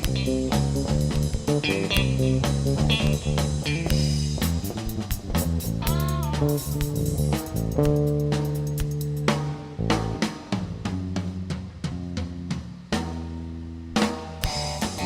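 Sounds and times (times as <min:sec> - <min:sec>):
rock band playing live: 0:00.0 - 0:15.0
electric guitar note bend: 0:01.5 - 0:04.3.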